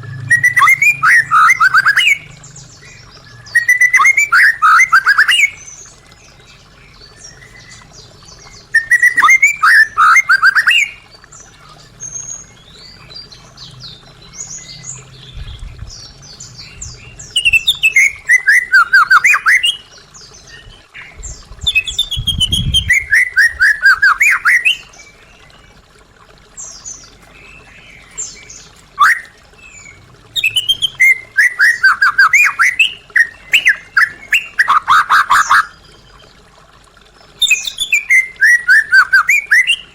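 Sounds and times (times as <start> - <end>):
bird singing whistled notes: 0.0 - 5.7, 8.5 - 11.0, 14.5 - 19.8, 21.6 - 24.9, 29.0 - 35.7, 37.4 - 39.9.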